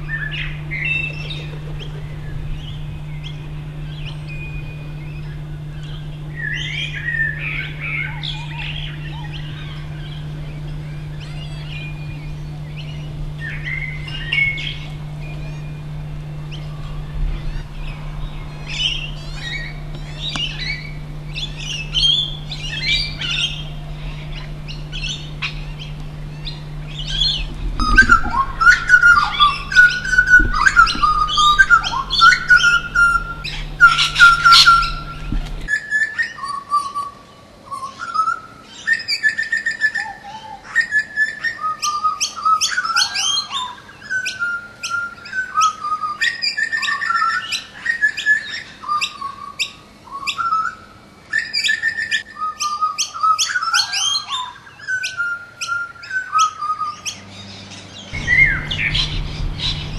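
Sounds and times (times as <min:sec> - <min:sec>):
low steady hum: 0:00.0 - 0:35.8, 0:56.8 - 0:59.9
birds singing and chirping: 0:00.0 - 0:59.9.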